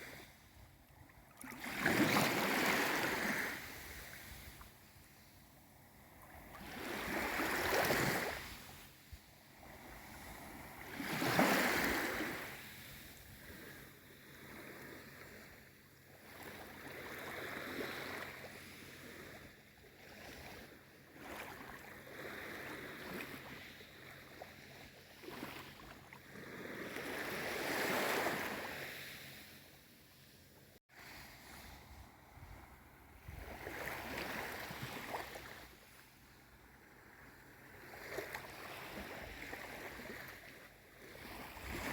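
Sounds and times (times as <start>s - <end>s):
waves washing in: 1.4s - 41.9s
water lapping: 20.0s - 28.9s, 31.0s - 41.9s.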